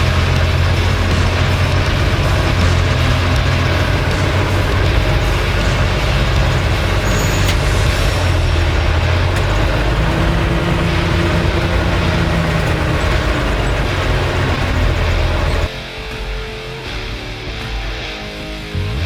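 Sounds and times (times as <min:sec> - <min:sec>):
truck engine droning: 0:00.0 - 0:15.7.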